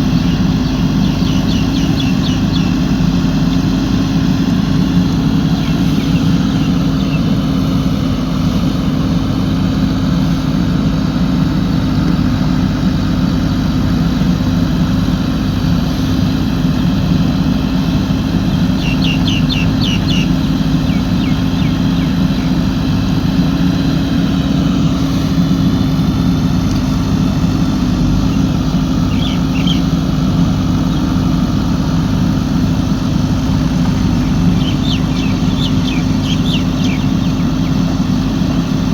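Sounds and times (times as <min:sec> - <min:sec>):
bird chirps: 0:00.0 - 0:04.4, 0:05.1 - 0:07.7, 0:17.3 - 0:23.2, 0:28.0 - 0:31.2, 0:33.7 - 0:38.6
diesel engine running steadily: 0:00.0 - 0:38.9.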